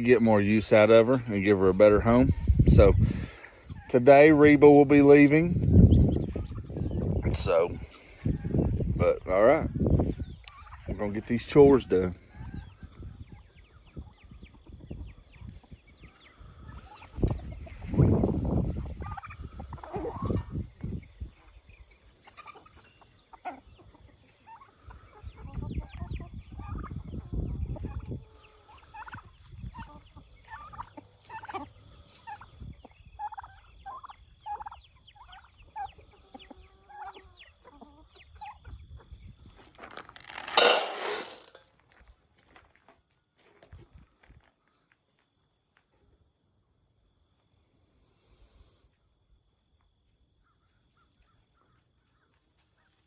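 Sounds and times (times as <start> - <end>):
poultry clucking: 0.0 - 39.3
turkey gobble: 18.8 - 20.7, 22.1 - 38.8.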